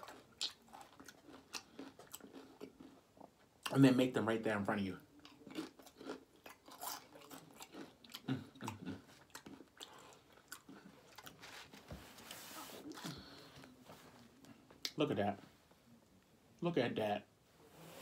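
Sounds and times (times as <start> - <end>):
chewing crunchy chips: 0.0 - 3.8, 5.2 - 11.4.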